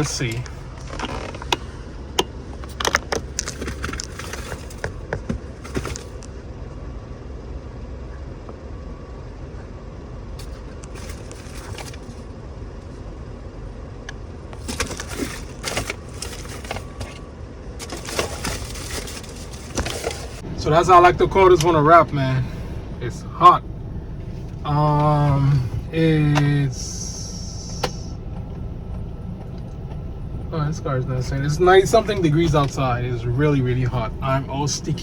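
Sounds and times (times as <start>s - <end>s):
handling clicks and rustles: 0.0s - 6.4s, 10.4s - 13.0s, 14.0s - 35.0s
steady low rumble: 15.3s - 35.0s.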